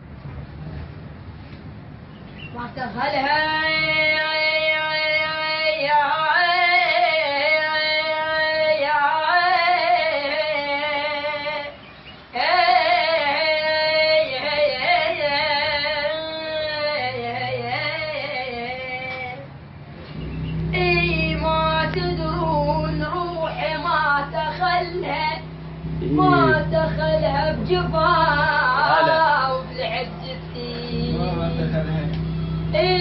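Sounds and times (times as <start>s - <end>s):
woman singing with vibrato: 2.6s - 19.5s, 20.7s - 31.8s, 32.6s - 33.0s.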